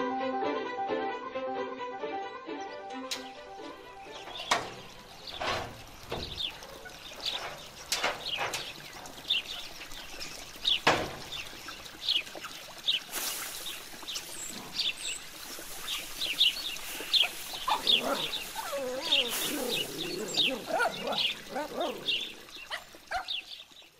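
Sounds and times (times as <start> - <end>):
small birds chirping: 3.2 - 23.9.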